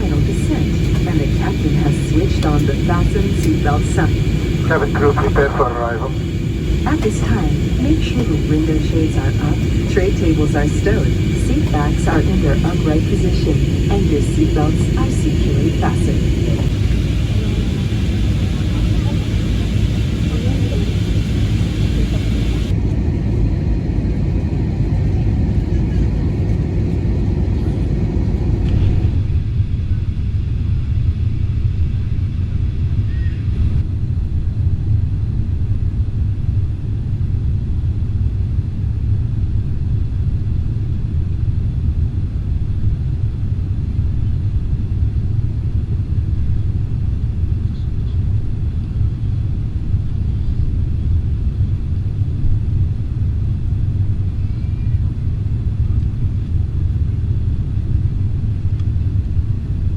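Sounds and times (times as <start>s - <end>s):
aircraft cabin rumble: 0.0s - 29.4s.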